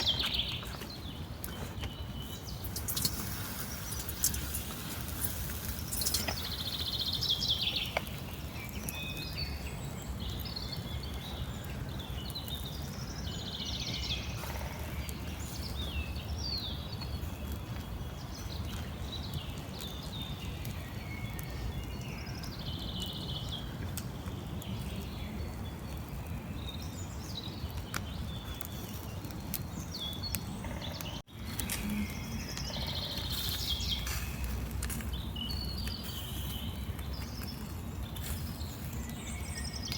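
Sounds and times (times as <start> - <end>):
small birds chirping and singing: 0.0 - 39.9.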